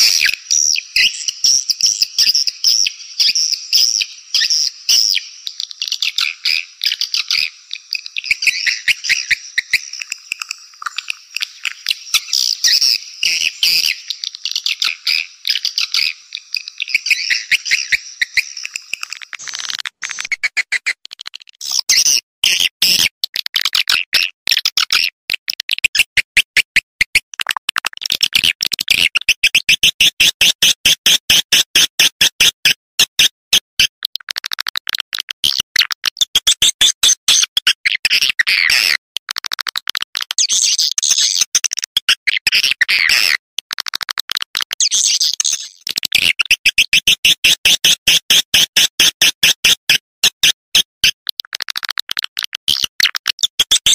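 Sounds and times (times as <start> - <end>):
swiftlet calls chattering: 0.0 - 20.7.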